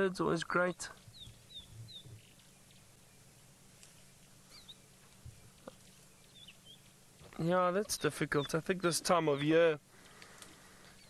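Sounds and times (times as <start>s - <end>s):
quiet bush ambience: 0.0s - 11.0s
faint small-bird chirps: 0.7s - 6.9s.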